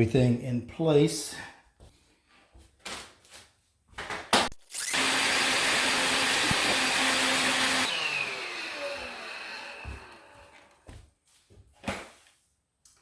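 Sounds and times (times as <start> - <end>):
motor winding down whine: 4.8 - 10.8
vacuum cleaner running: 4.9 - 10.8.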